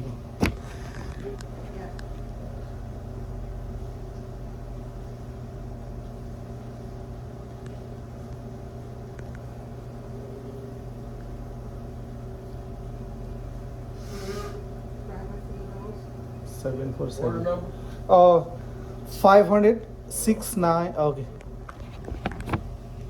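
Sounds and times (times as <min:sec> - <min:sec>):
low mechanical hum: 0:00.0 - 0:23.0
hiss burst: 0:14.0 - 0:14.6.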